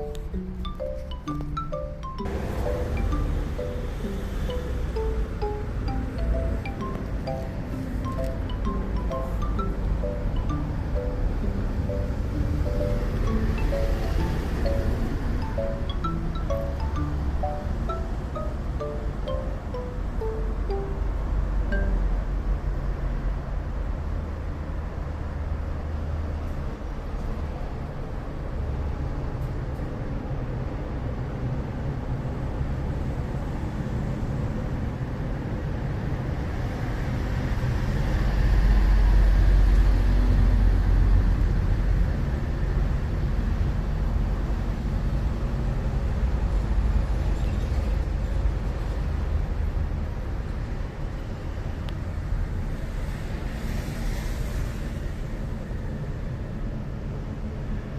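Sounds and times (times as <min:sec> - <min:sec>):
vehicle passing: 0:00.0 - 0:22.9
road traffic rumble: 0:00.0 - 0:57.9.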